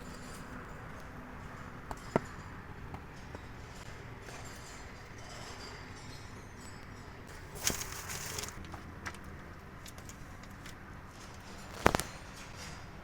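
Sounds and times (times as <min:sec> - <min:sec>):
scraping rustle: 0:07.3 - 0:09.2.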